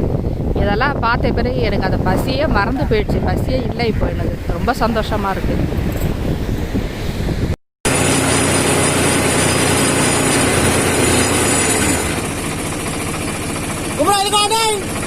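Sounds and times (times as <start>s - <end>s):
tractor diesel engine running: 7.9s - 15.0s.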